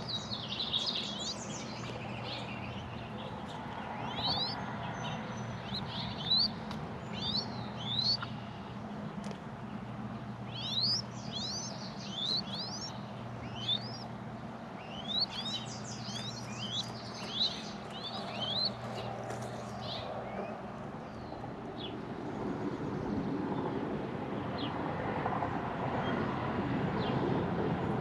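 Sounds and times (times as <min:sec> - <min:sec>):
small bird chirping: 0:00.0 - 0:09.4, 0:10.4 - 0:21.3
low steady hum: 0:00.0 - 0:23.6.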